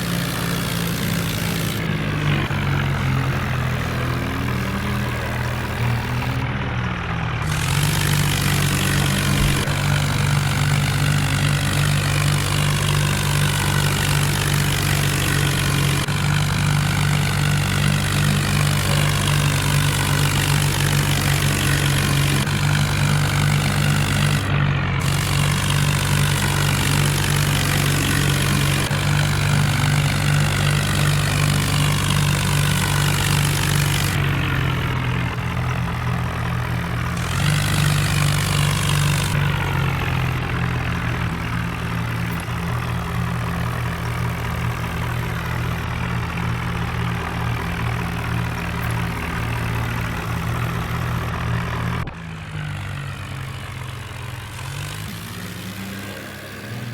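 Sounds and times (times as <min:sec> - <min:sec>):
tractor diesel engines running: 0:00.0 - 0:56.9.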